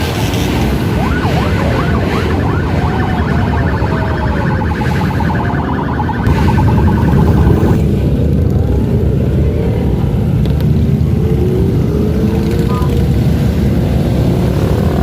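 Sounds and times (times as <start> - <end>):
sirens wailing: 0.0 - 7.9
vehicle engines rumbling: 0.0 - 15.0.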